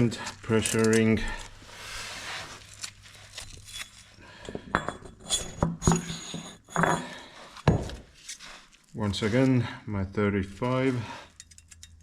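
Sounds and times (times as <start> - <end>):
metal tools clinking: 0.0 - 1.5, 2.6 - 7.3, 10.6 - 12.0.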